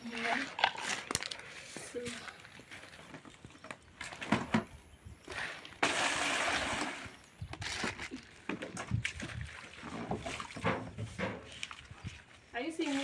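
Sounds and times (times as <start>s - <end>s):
water splashing and sloshing: 0.0s - 13.0s
poured water gushing: 5.3s - 13.0s.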